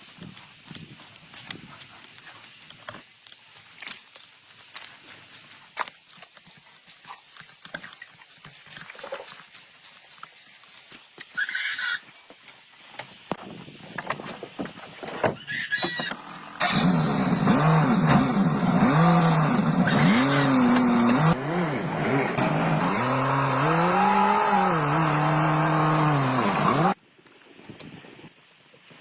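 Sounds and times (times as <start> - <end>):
truck engine revving: 16.6 - 27.0.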